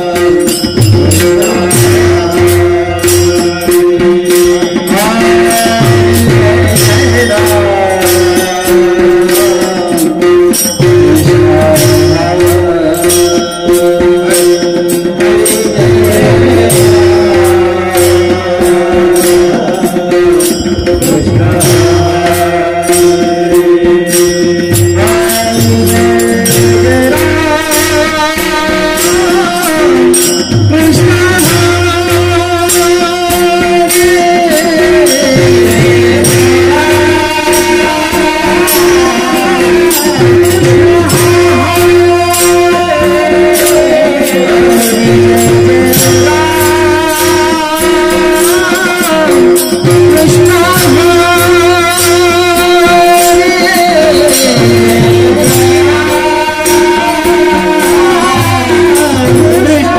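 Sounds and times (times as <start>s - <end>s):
cymbals: 0.0s - 59.9s
drum beat: 0.0s - 59.9s
metallic percussion strikes: 0.0s - 59.9s.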